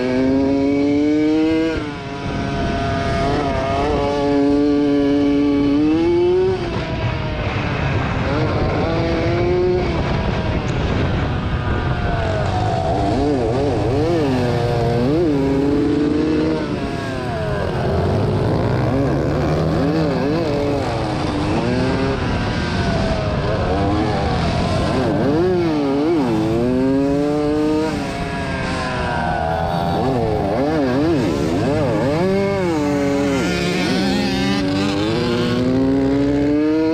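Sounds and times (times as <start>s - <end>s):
motocross bike engines racing: 0.0s - 36.9s.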